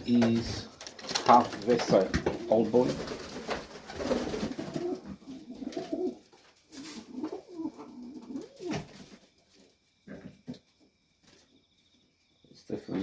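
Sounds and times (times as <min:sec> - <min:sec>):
pigeons cooing: 0:01.8 - 0:09.2.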